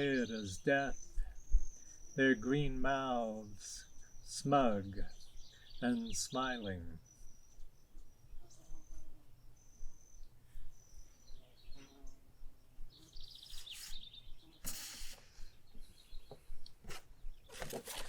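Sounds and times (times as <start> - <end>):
bird trill: 0.0 - 14.6
small birds calling: 0.0 - 18.0
sharp noisy burst: 14.6 - 15.4.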